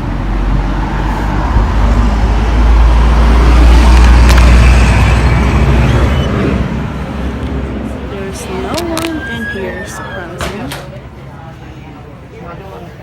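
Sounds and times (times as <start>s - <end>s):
vehicle passing with low rumble: 0.0s - 10.0s.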